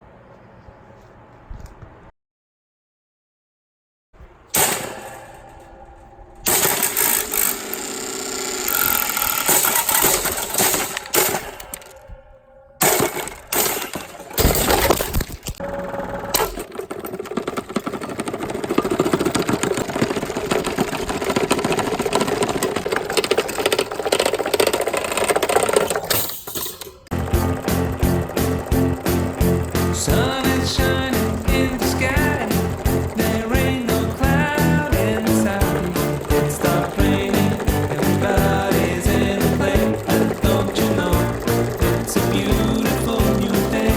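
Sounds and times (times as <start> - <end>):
rattling clatter: 6.4 - 11.9, 16.3 - 43.9
table fan being smashed: 9.0 - 11.9, 12.8 - 15.6.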